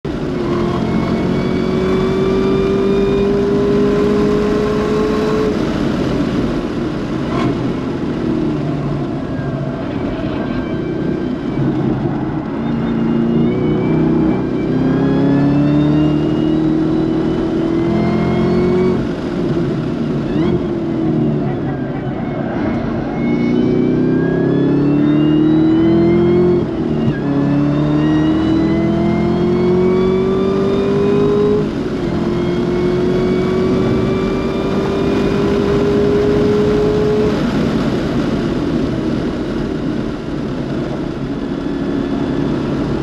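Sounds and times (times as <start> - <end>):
car engine running hard: 0.0 - 43.0
road noise: 0.0 - 43.0.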